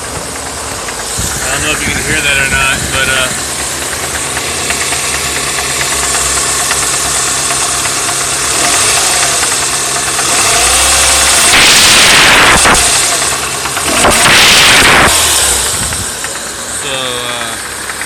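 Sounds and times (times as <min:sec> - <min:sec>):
loud rushing noise: 0:00.0 - 0:07.5, 0:10.7 - 0:16.2
car engine running: 0:00.0 - 0:18.0
engine knock: 0:00.0 - 0:18.0.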